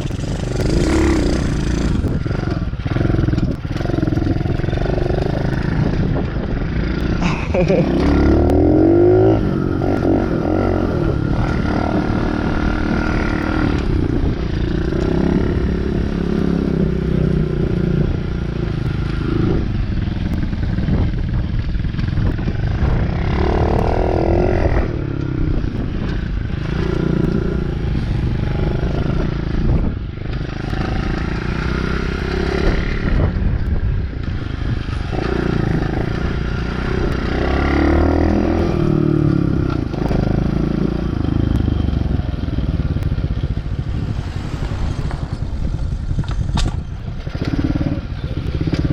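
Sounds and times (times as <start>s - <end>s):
dirt bike engine revving: 0.0s - 6.0s, 6.9s - 16.6s.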